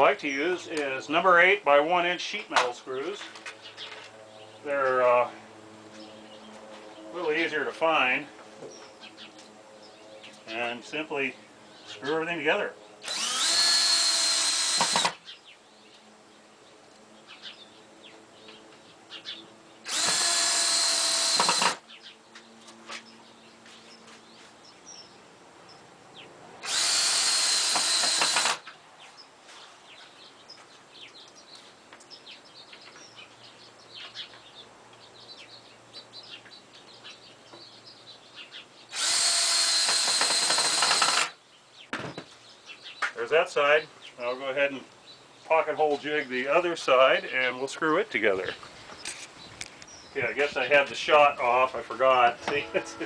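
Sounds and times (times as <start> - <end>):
electric drill boring into wood: 13.0 - 15.2, 19.9 - 21.8, 26.6 - 28.7, 38.9 - 41.4.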